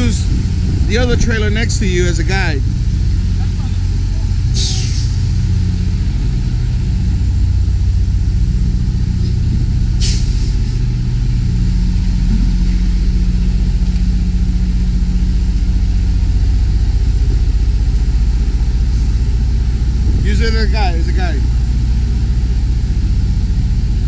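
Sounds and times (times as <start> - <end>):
diesel truck engine idling: 0.0 - 24.0
air brake hiss: 4.5 - 5.2, 10.0 - 10.7.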